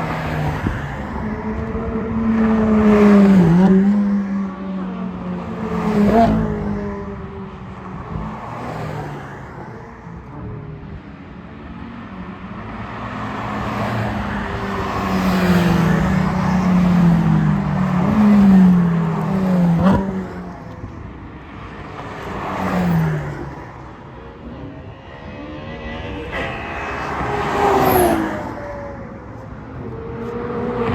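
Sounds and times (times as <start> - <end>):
sports car engine passing: 12.9 - 30.9.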